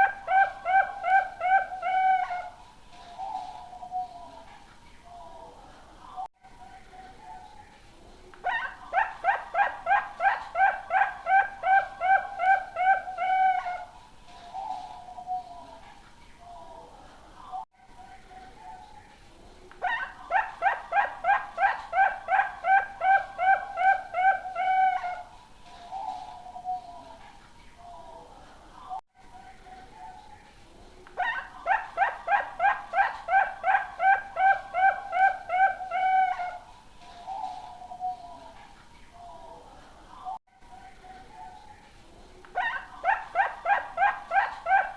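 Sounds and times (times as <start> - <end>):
dove cooing: 0.0 - 2.6, 8.5 - 13.9, 19.8 - 27.2, 31.2 - 38.5.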